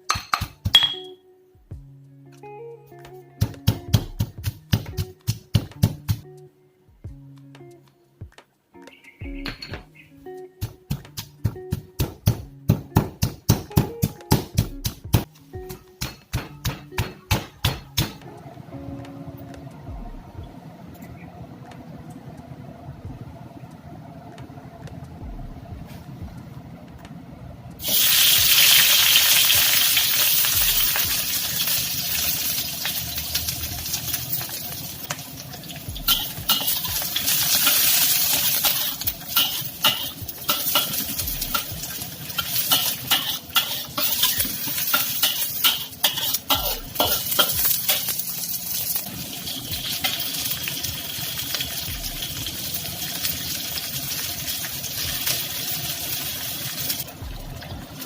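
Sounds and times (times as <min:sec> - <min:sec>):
food sizzling in hot oil: 0:27.8 - 0:58.0
spatula scraping pan: 0:36.1 - 0:41.7, 0:42.3 - 0:48.2.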